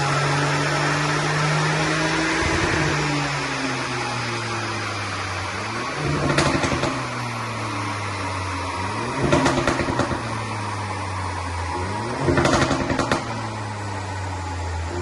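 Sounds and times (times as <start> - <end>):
car engine revving: 0.0 - 15.0
exhaust pops and crackles: 6.0 - 7.2, 9.1 - 10.4, 12.2 - 13.5.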